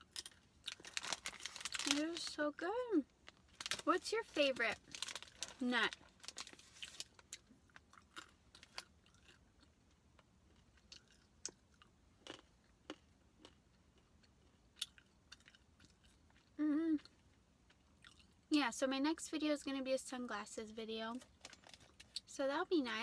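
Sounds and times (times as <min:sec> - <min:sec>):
chewing and crunching nuts: 0:00.0 - 0:02.4, 0:03.1 - 0:18.5, 0:21.2 - 0:22.3
person humming: 0:16.6 - 0:17.0.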